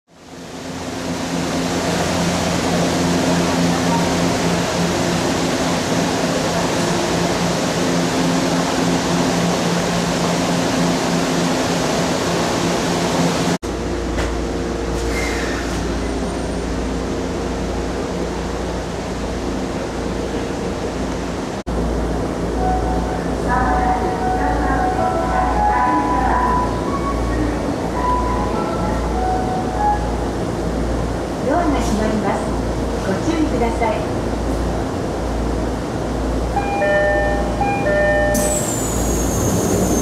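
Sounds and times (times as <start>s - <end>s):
electric train humming: 0.1s - 15.0s, 15.6s - 40.0s.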